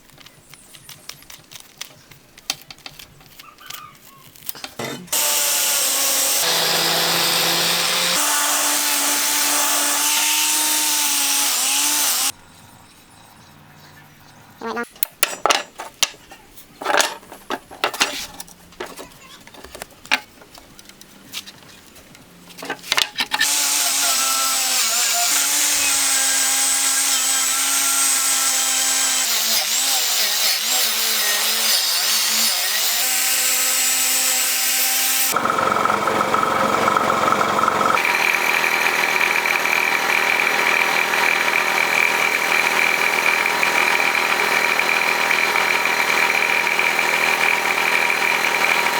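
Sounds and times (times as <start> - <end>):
power tool whining: 4.6 - 12.3, 23.4 - 48.9.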